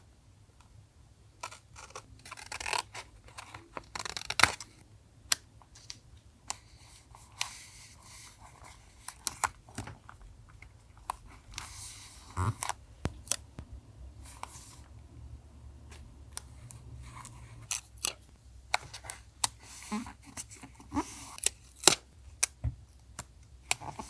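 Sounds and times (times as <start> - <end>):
small taps and clicks: 13.0 - 13.7.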